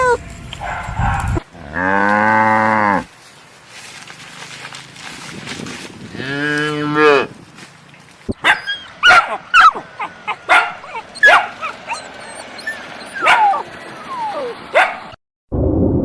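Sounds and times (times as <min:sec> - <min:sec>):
cow mooing: 0:01.4 - 0:03.1, 0:06.1 - 0:07.4
dog barking and yelping: 0:08.3 - 0:15.2.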